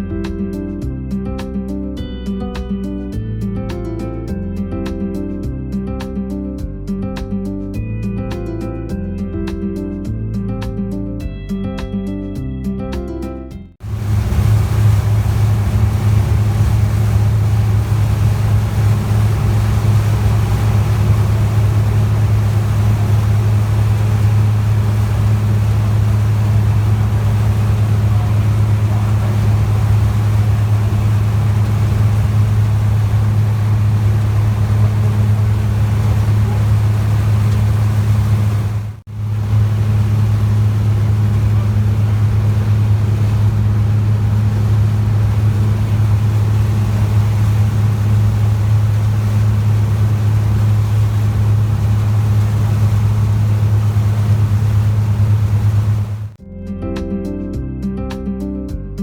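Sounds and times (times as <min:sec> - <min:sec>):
ferry engine droning: 0:13.8 - 0:56.4.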